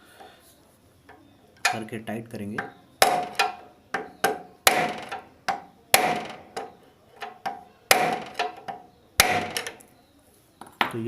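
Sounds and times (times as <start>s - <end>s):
hammer striking screwdriver: 3.0s - 9.8s.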